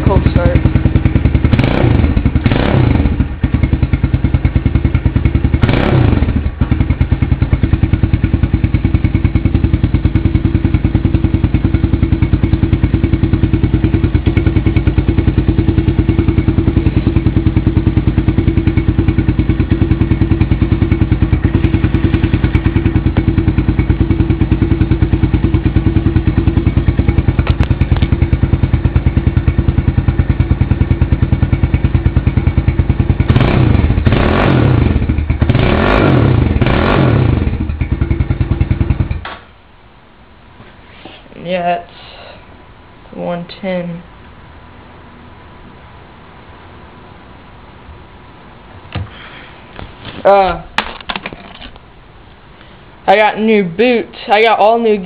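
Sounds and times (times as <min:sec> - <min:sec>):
small motorcycle engine idling: 0:00.0 - 0:39.4.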